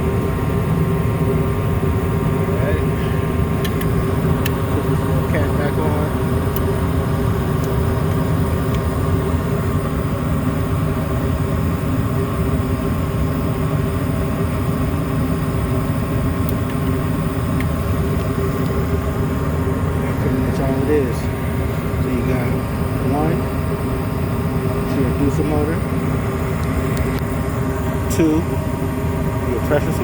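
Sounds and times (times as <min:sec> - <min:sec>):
gas furnace burners rumbling: 0:00.0 - 0:30.0
motor hum: 0:00.0 - 0:30.0.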